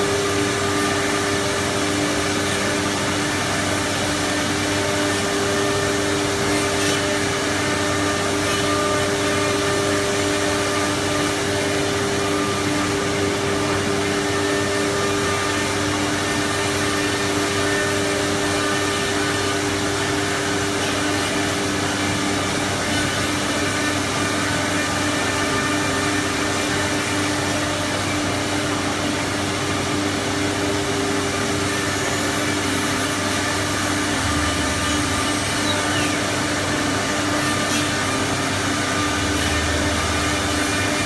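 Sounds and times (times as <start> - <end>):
cnc router machine whine: 0.0 - 41.0.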